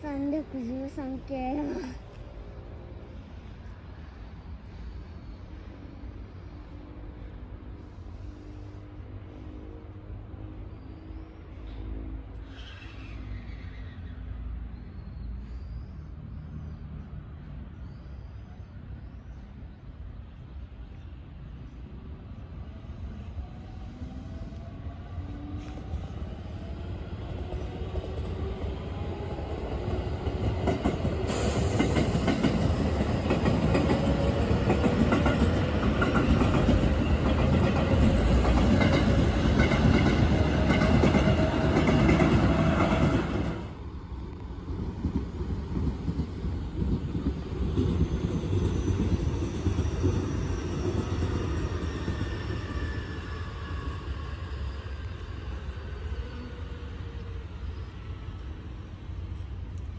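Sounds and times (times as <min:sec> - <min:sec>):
train wheels rattling on rails: 0:25.4 - 0:56.3.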